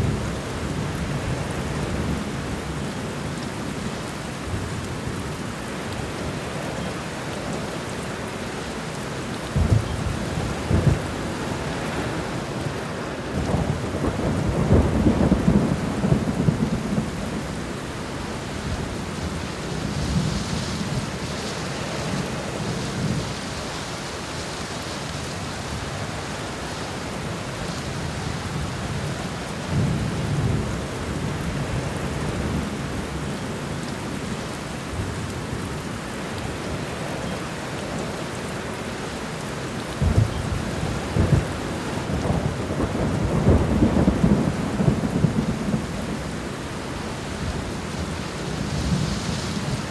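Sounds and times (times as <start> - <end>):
heavy rain: 0.0 - 49.9
thunder rumbling: 9.6 - 12.6, 13.3 - 23.4, 40.0 - 49.9.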